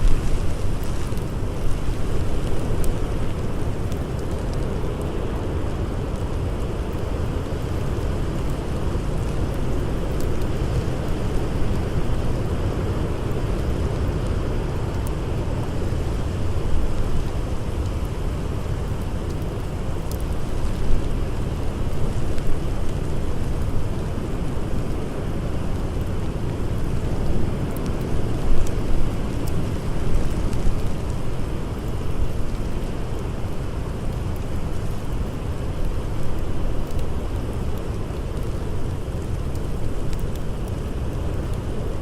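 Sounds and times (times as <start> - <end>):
faint campfire crackles: 0.0 - 42.0
howling blizzard wind: 0.0 - 42.0.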